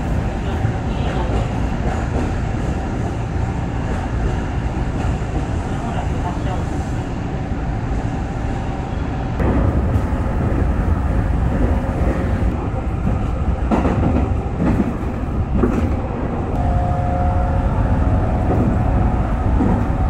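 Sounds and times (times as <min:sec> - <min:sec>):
train wheels rumbling on rails: 0:00.0 - 0:20.0
clacks over rail joints: 0:11.6 - 0:16.1.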